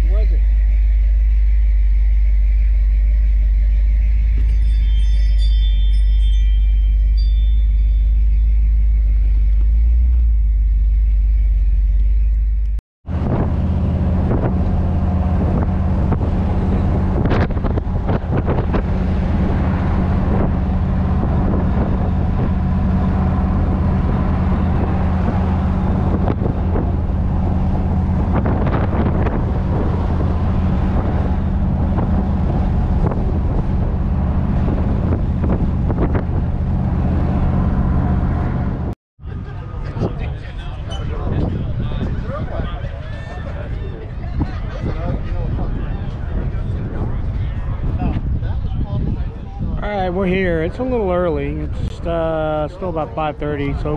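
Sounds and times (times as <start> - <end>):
car engine rumbling: 0.0 - 53.9
road and wind noise: 0.0 - 53.9.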